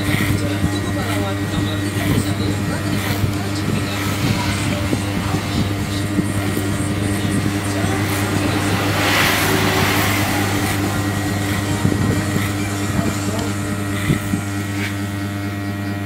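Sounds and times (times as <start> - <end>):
electric hair clipper buzzing: 0.0 - 16.0.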